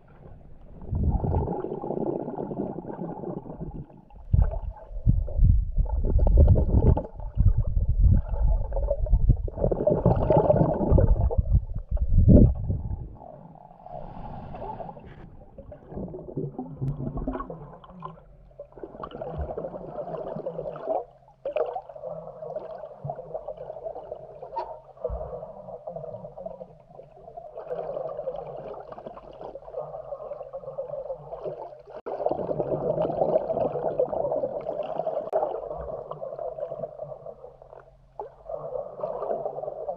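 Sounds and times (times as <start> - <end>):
underwater swishing and gurgling: 0.0 - 39.9
heavy low rumbling: 4.2 - 9.8, 10.9 - 13.2.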